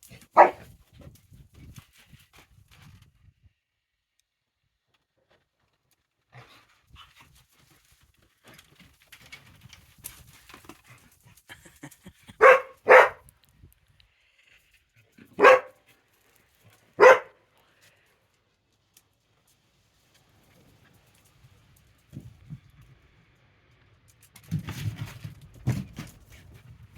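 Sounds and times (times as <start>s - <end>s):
paws scuffling: 0.0s - 2.7s, 12.4s - 13.2s, 15.4s - 17.3s
dog barking: 0.3s - 0.6s, 12.4s - 13.2s, 15.4s - 15.8s, 17.0s - 17.4s.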